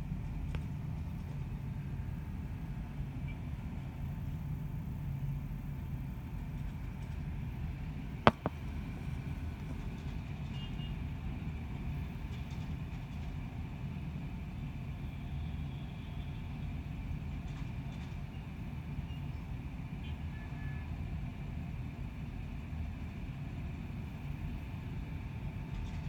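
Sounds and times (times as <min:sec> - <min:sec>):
distant city traffic rumble: 0:00.0 - 0:20.2.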